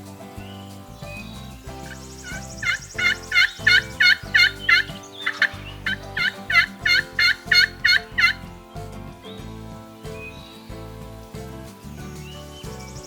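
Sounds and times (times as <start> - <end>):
faint background music: 0.0 - 13.0
turkey yelping: 1.9 - 8.5.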